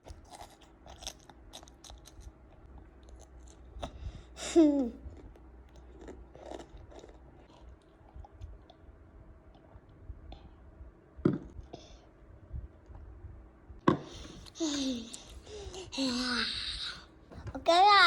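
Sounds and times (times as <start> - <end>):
child chewing: 0.0 - 8.9, 14.1 - 16.2.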